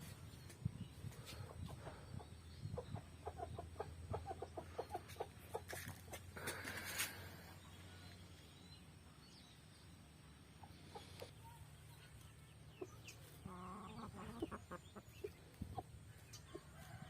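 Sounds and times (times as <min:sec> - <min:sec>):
chicken clucking: 0:01.1 - 0:06.3, 0:10.6 - 0:17.0.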